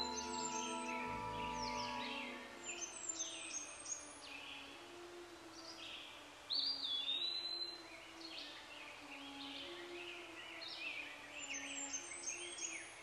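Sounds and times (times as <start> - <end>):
long whistled bird note: 0.0 - 3.4
songbirds chirping: 0.0 - 13.0.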